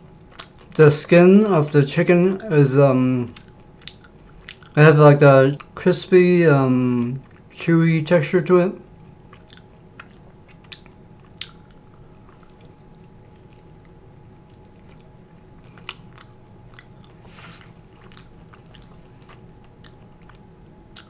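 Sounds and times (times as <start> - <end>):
faint steady hum: 0.0 - 21.0
person chewing chicken wing: 0.1 - 0.8, 3.3 - 4.8, 9.0 - 21.0.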